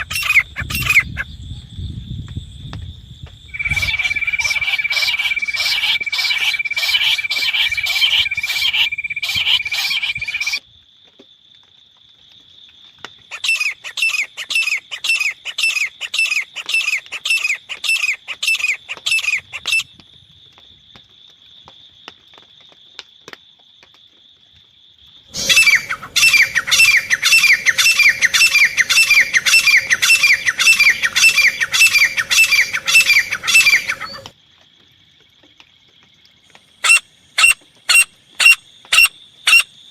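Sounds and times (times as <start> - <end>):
francolin calling: 0.0 - 1.3, 3.5 - 10.6, 25.3 - 34.3, 36.8 - 39.7.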